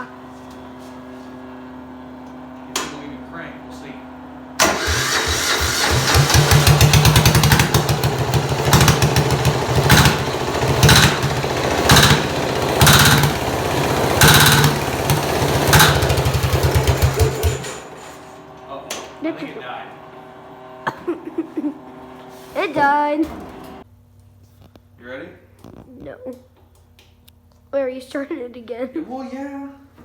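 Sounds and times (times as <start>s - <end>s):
diesel engine running roughly: 4.5s - 18.5s
sharp engine knocks: 6.1s - 17.8s.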